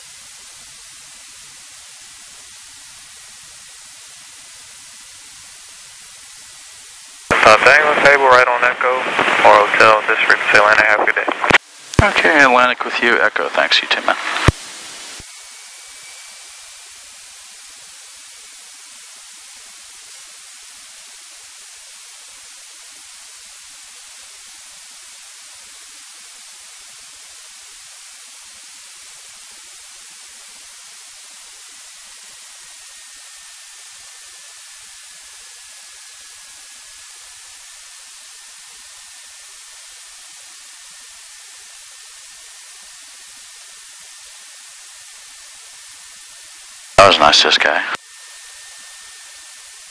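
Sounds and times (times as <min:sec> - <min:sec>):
faint high whine: 0:00.1 - 0:49.9
radio intercom hiss: 0:07.3 - 0:17.6, 0:46.9 - 0:49.9.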